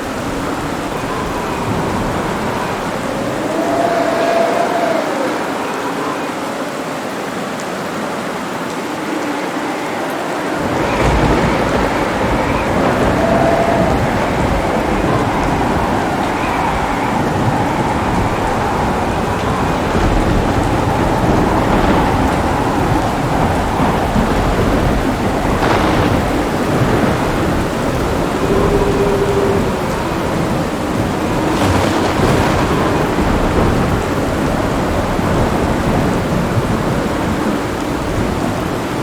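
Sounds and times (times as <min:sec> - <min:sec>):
thunder rumbling: 0:00.0 - 0:06.7, 0:08.8 - 0:39.0
heavy rain: 0:00.0 - 0:39.0
sharp thunder crack: 0:10.6 - 0:37.6.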